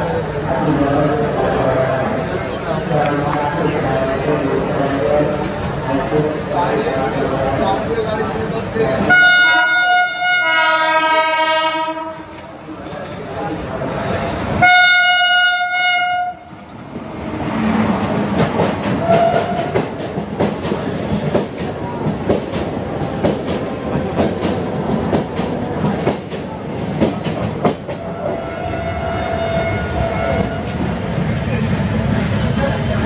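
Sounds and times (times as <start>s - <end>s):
train coaches rumbling past: 0.0s - 33.0s
locomotive horn: 9.1s - 12.3s, 14.6s - 16.5s, 28.3s - 30.8s.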